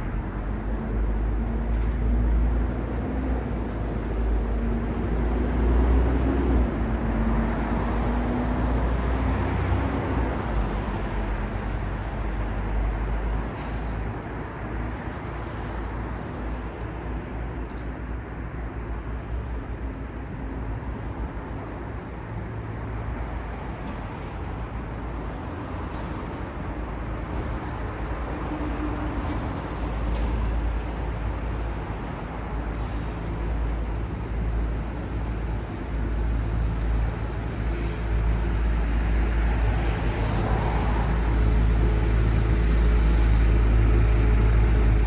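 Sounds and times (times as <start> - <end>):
heavy vehicle engine rumbling: 0.0 - 16.5, 20.5 - 45.0.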